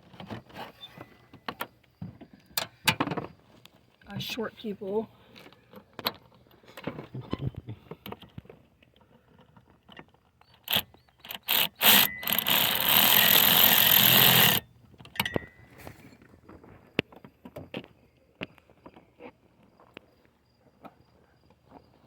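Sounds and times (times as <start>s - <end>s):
tools clicking and knocking: 9.9s - 15.6s
power tool running: 10.7s - 14.7s.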